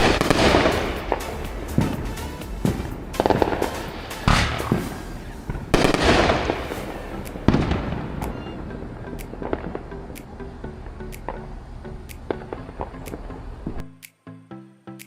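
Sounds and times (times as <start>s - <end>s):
firecrackers banging and crackling: 0.0s - 10.4s.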